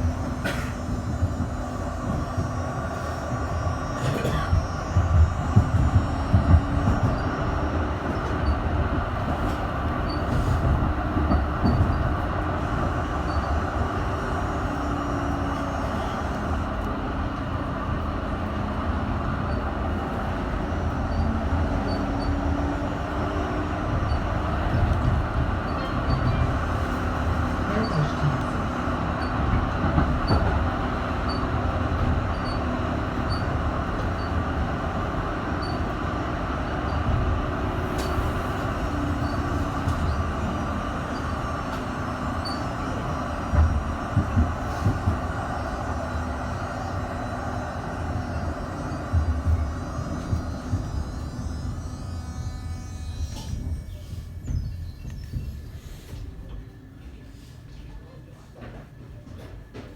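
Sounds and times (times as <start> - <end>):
wheels rumbling on rails: 0.0 - 59.9.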